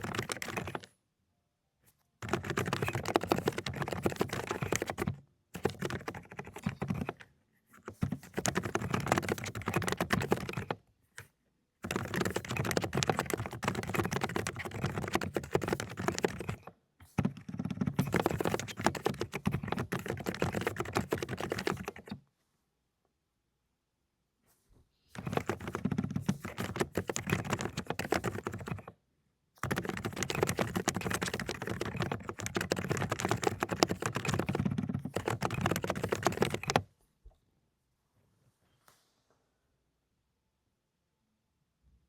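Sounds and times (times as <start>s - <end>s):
fast typing on mechanical keyboard: 0.0s - 0.9s, 2.2s - 7.2s, 7.8s - 10.8s, 11.8s - 22.2s, 25.1s - 28.9s, 29.6s - 36.9s.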